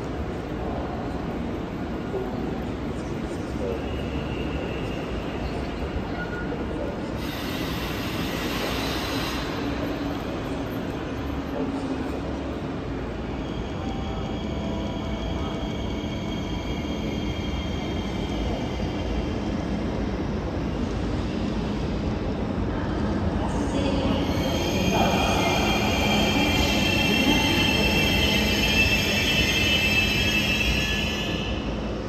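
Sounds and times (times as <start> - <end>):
high-pitched brake squealing: 24.1 - 31.8.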